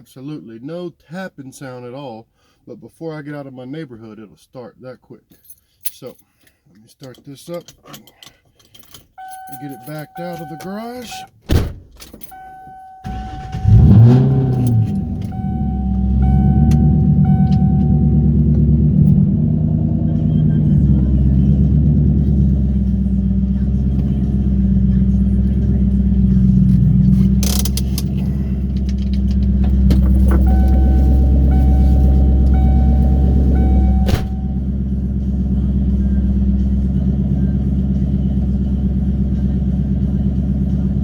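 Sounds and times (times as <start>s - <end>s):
car warning chime: 9.2s - 11.4s, 12.2s - 21.6s, 29.4s - 35.2s
car engine starting and idling: 9.2s - 41.0s.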